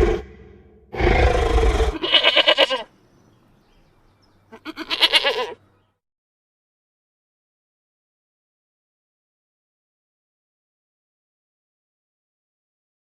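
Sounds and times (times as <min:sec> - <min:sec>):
goat bleating: 0:01.9 - 0:02.9, 0:04.5 - 0:05.6.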